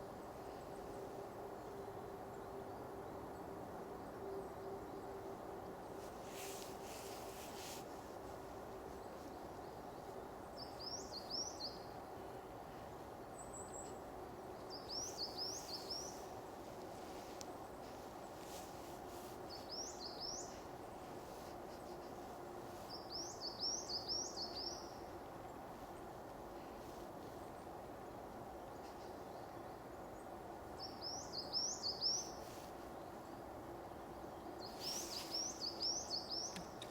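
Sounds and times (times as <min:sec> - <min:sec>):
outdoor ambience: 0:00.0 - 0:36.9
songbird singing: 0:00.1 - 0:36.9.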